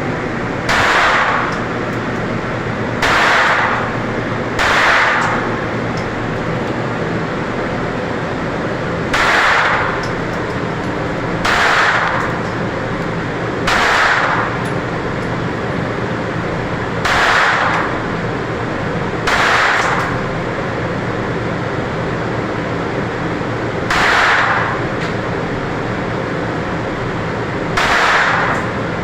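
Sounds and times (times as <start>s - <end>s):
steady background noise: 0.0s - 29.0s
gunshots ringing: 0.7s - 1.6s, 3.0s - 4.0s, 4.6s - 5.5s, 9.1s - 10.0s, 11.4s - 12.3s, 13.6s - 14.6s, 17.0s - 18.0s, 19.2s - 20.2s, 23.9s - 24.8s, 27.8s - 28.7s.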